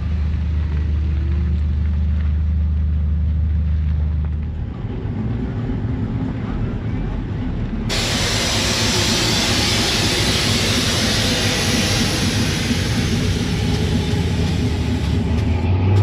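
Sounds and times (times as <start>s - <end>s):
engine running: 0.0s - 16.0s
air hissing: 7.9s - 15.6s.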